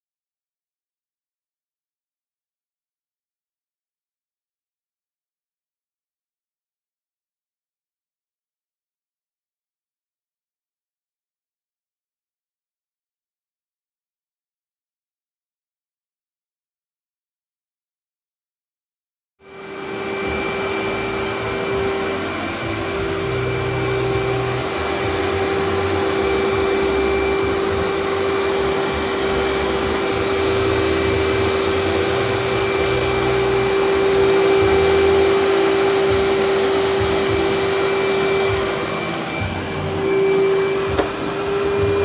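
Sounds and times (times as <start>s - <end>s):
vacuum cleaner whining: 19.4s - 42.0s.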